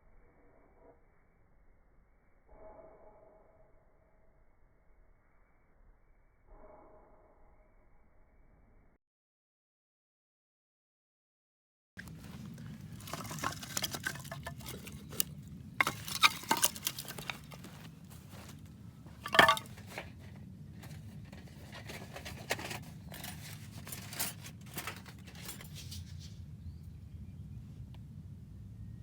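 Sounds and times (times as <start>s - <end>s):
small hard objects clinking: 12.0s - 26.0s.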